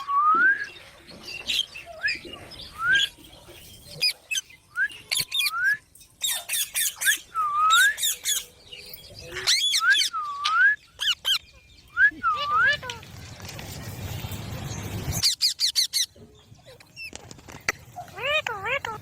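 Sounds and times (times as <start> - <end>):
parrots whistled calls: 1.5 - 3.2, 4.0 - 8.5, 9.3 - 12.9, 15.2 - 16.1.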